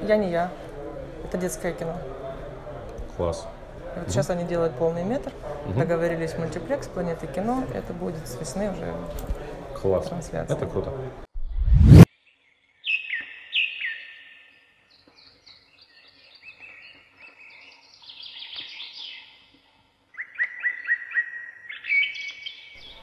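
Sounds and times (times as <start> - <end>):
small songbirds singing: 12.2 - 23.0.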